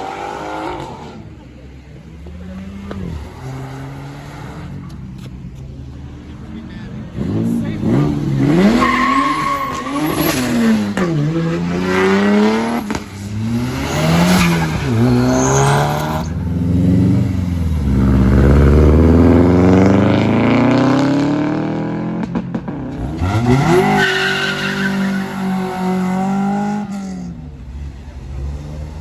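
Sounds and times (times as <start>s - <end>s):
car engine revving: 0.0s - 29.0s
tyres squealing: 7.8s - 11.4s, 23.2s - 25.9s.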